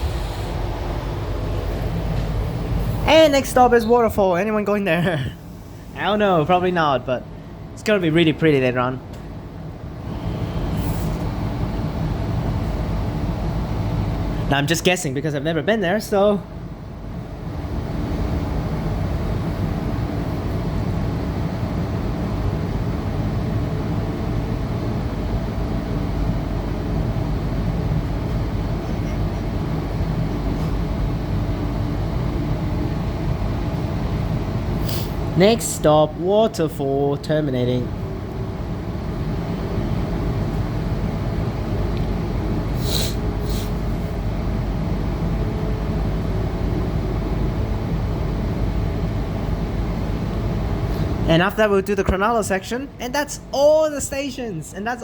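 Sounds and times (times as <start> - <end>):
high hissing squeal: 0.0 - 1.2
train wheels rumbling on rail: 0.0 - 3.0
train motor noise: 0.0 - 3.1.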